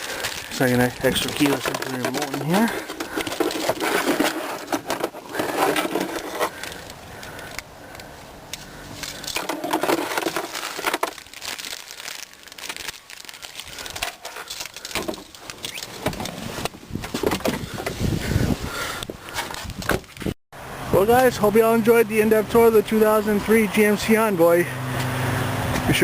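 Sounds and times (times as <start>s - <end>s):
handling noise rustling and knocking: 0.0s - 18.6s, 19.3s - 20.4s.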